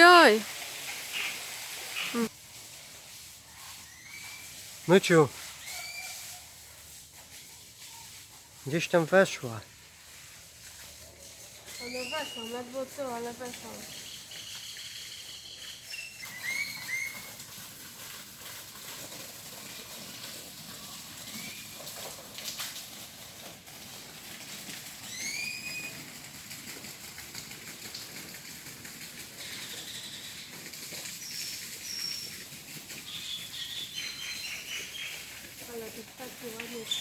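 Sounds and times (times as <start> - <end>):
songbirds singing: 33.1 - 35.2.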